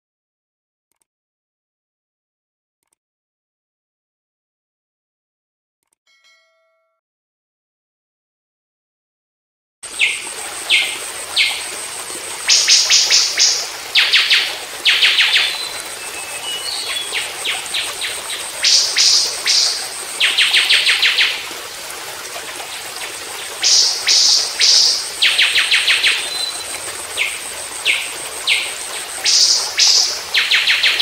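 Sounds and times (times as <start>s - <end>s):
songbird buzzy trills: 9.9s - 21.4s, 23.4s - 31.0s.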